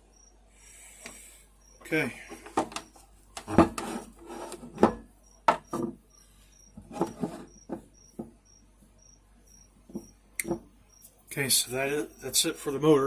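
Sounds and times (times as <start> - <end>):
cricket chirping: 0.0 - 3.0, 5.0 - 13.0
motor parts knocking and clunking: 2.3 - 4.0.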